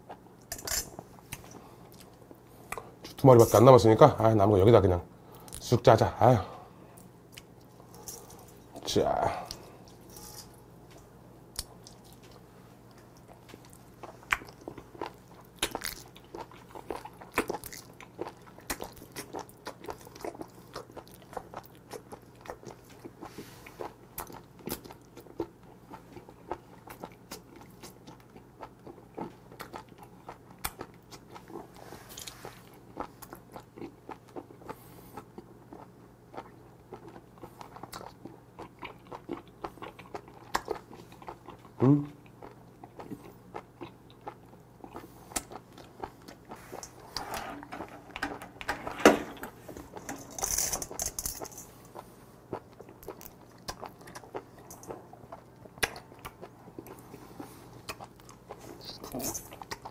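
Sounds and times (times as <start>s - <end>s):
chewing raw octopus: 11.6s - 47.2s, 49.5s - 59.9s.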